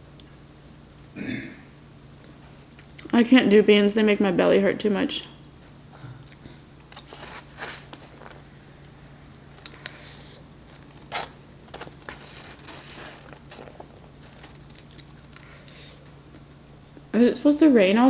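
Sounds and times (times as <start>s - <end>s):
close chewing and biting: 6.2s - 16.2s
food crunches: 6.2s - 16.5s.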